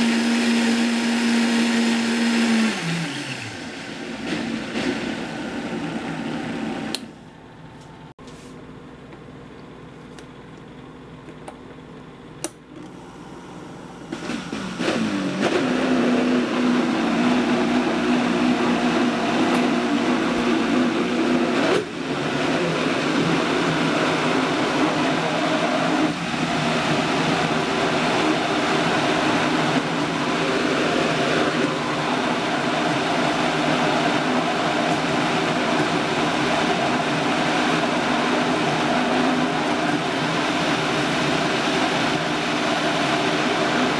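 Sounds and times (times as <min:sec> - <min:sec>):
blender motor running: 0:00.0 - 0:07.0, 0:12.9 - 0:43.9.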